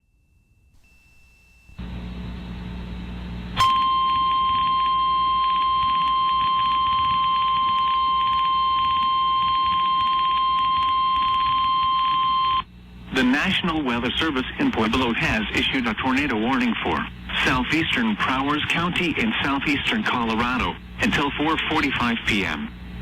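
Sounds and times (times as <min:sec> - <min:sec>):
low hum and radio static: 0:01.8 - 0:23.0
steady alarm tone: 0:03.6 - 0:12.7.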